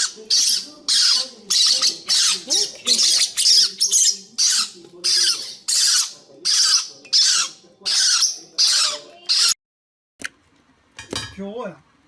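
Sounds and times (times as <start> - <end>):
pet bird squawking harshly: 0.0 - 9.6.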